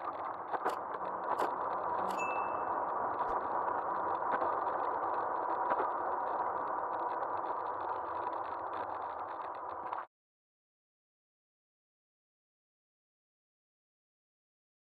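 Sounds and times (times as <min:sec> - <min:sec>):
faint steady whine: 0:00.0 - 0:10.1
wind and road noise: 0:00.0 - 0:10.1.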